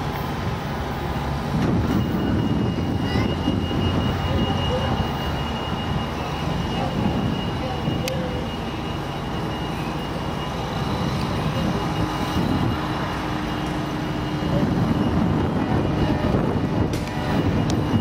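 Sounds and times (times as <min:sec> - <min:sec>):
diesel train engine rumble: 0:00.0 - 0:18.0.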